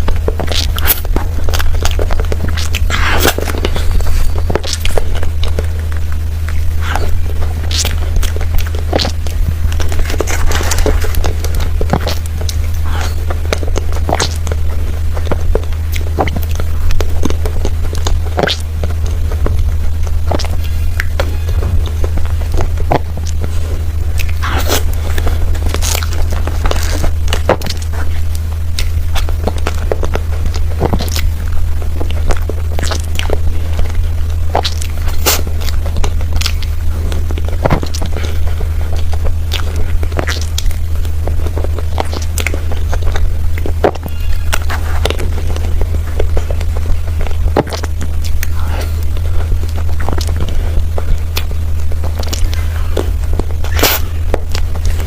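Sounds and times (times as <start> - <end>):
chewing and lip smacks: 0.0 - 55.0
steady low hum: 0.0 - 55.0
wet mouth eating sounds: 0.0 - 55.0.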